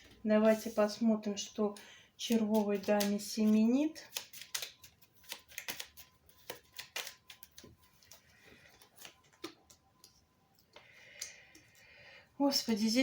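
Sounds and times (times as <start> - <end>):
playing cards clicking and snapping: 2.3 - 8.2, 8.9 - 10.2.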